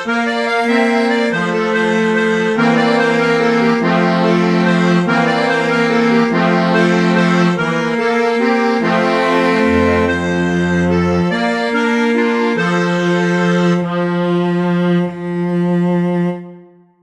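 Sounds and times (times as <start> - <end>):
bandoneon playing a waltz: 0.0 - 16.6
cello playing: 2.5 - 16.0.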